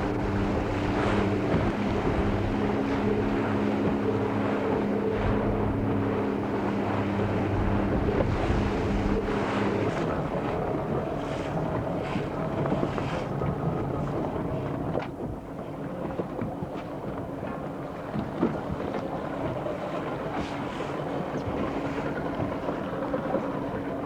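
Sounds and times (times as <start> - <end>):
wind buffeting microphone: 0.0 - 15.0
water washing against boat hull: 0.0 - 24.0.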